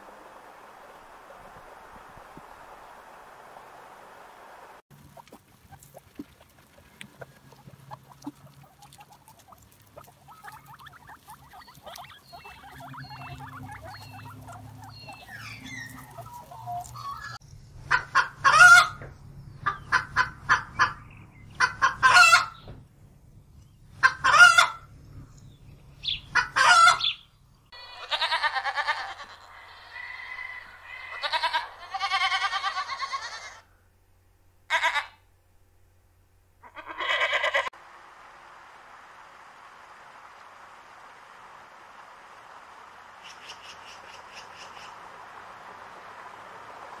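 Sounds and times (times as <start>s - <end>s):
chicken drawn-out calls: 4.9s - 22.7s, 23.9s - 25.3s, 26.0s - 33.7s, 34.7s - 35.2s, 36.6s - 37.8s
chickens clucking: 4.9s - 22.8s, 23.9s - 33.3s.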